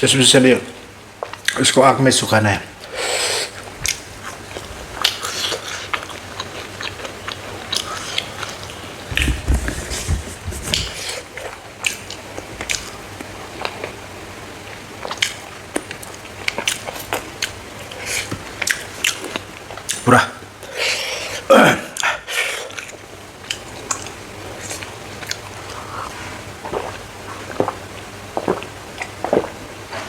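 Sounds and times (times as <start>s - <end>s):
chewing and crunching: 3.6s - 9.4s, 14.6s - 20.0s, 22.0s - 30.0s.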